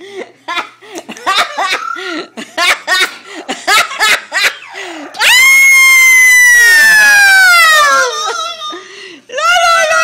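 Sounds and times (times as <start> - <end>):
parrot imitating laughter: 1.1 - 4.9.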